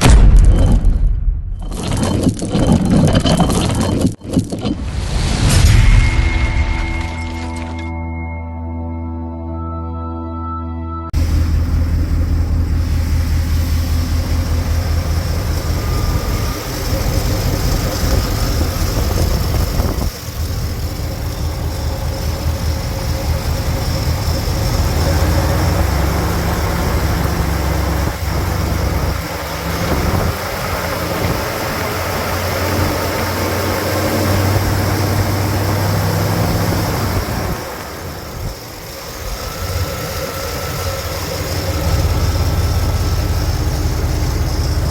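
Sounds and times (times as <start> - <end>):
car engine running low hum: 11.2 - 44.9.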